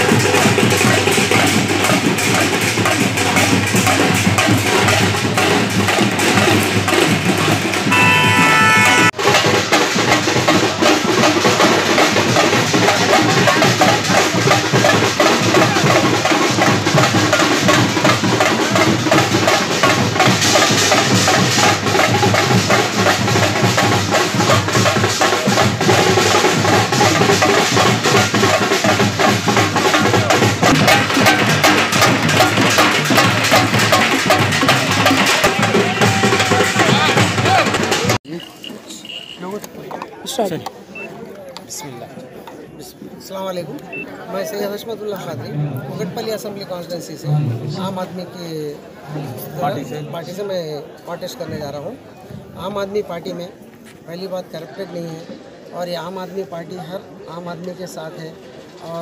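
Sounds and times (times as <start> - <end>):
loud music with heavy drumming: 0.0 - 38.2.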